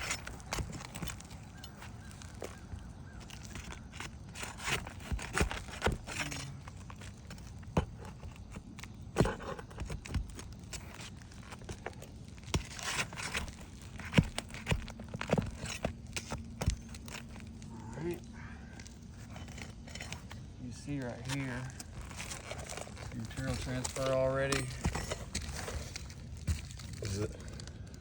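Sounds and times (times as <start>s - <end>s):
shingles scraping and crinkling: 0.0s - 28.0s
nails being pried out: 21.2s - 27.8s.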